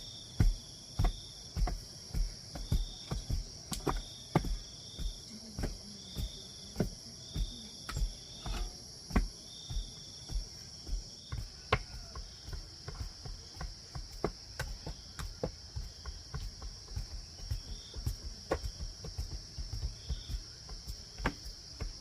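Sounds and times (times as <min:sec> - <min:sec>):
insects droning: 0:00.0 - 0:22.0
digging tool thudding into soil: 0:00.4 - 0:15.4.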